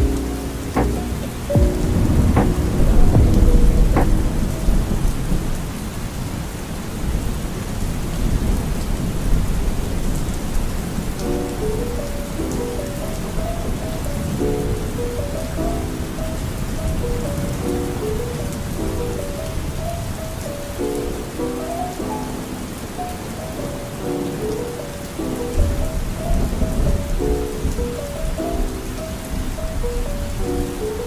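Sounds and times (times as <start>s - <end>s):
soft music notes: 0.0s - 5.6s, 11.2s - 31.0s
low thunder rumble: 0.0s - 6.2s
steady rain: 0.0s - 31.0s.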